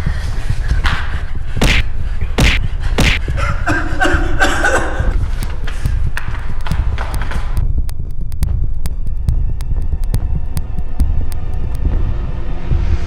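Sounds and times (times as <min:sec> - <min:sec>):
steady low rumble: 0:00.0 - 0:13.0
slap and punch hits: 0:01.6 - 0:03.3.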